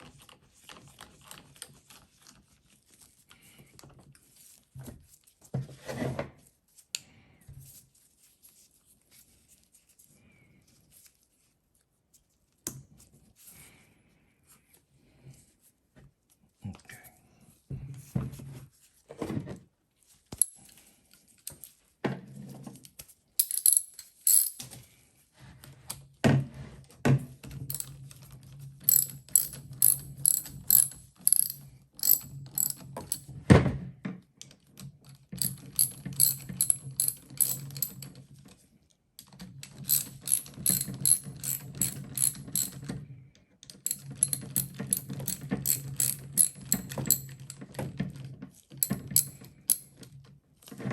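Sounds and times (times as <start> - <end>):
ratchet wrench clicking: 23.4 - 24.6, 28.9 - 33.2, 35.4 - 38.0, 39.8 - 42.8, 43.9 - 47.6, 48.8 - 49.8.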